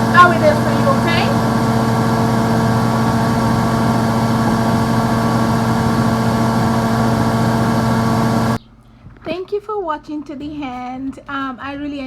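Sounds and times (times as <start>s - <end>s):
loud steady machine hum: 0.0s - 8.6s.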